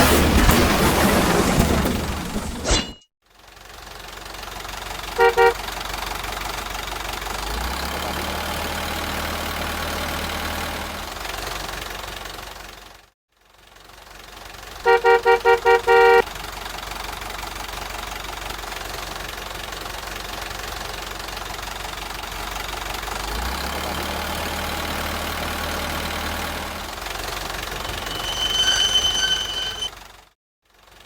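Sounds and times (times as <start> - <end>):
truck engine running: 3.4 - 30.3
truck horn tooting: 5.1 - 5.7, 14.8 - 16.3, 27.7 - 30.0
shrill high tone: 27.8 - 29.9.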